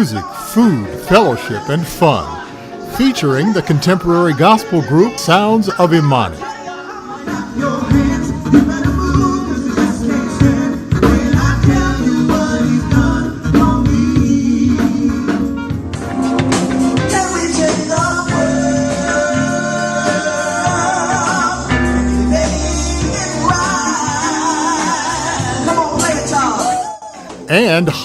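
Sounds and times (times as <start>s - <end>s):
person singing: 0.0s - 15.4s
gospel band playing: 0.0s - 28.0s.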